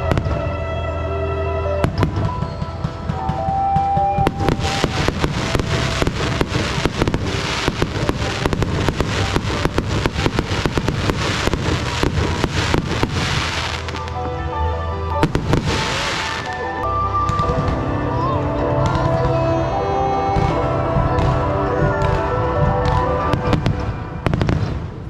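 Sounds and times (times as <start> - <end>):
music: 0.0 - 25.0
fireworks bursting and crackling: 1.8 - 14.2, 15.2 - 18.0, 20.3 - 25.0.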